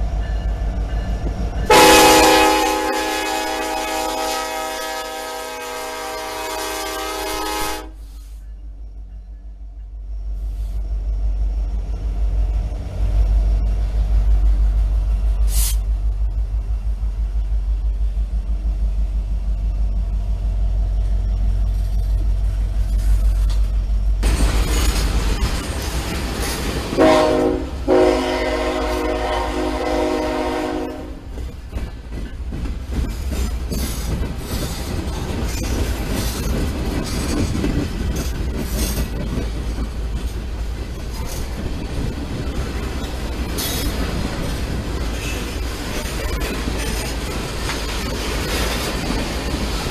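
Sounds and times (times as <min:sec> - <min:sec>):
diesel locomotive engine rumble: 0:00.0 - 0:49.9
short hiss: 0:15.4 - 0:15.9
freight cars rolling over rails: 0:21.7 - 0:27.6, 0:31.2 - 0:49.9.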